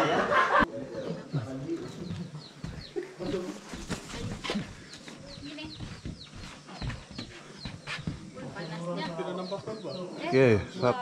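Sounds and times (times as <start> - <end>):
murmur of voices: 0.0 - 5.4
birds chirping: 0.3 - 11.0.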